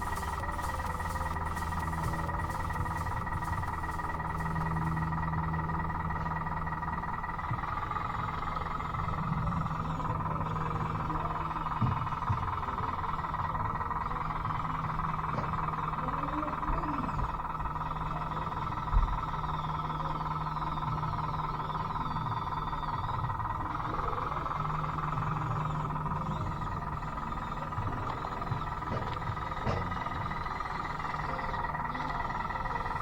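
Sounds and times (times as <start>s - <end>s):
electric motors whining: 0.0s - 33.0s.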